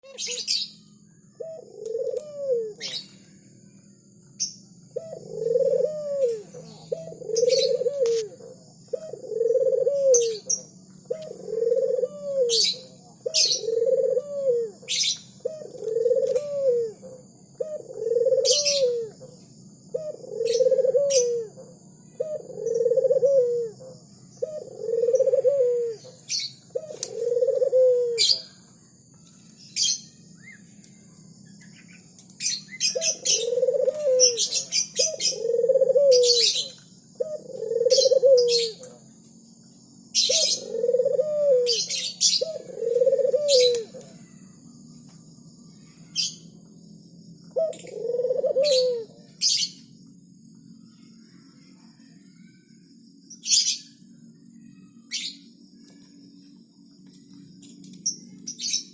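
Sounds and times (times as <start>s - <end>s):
small birds chirping: 0.0s - 58.9s
dove cooing: 1.4s - 3.4s, 4.9s - 30.6s, 31.8s - 39.1s, 40.1s - 44.5s, 47.4s - 49.9s.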